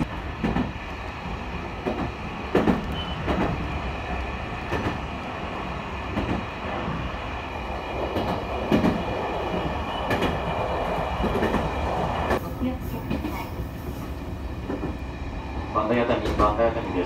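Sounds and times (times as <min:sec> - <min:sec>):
electric train rumbling: 0:00.0 - 0:17.0
wheels clacking over rail joints: 0:01.5 - 0:03.7, 0:04.6 - 0:05.1, 0:06.0 - 0:07.0, 0:08.0 - 0:12.4.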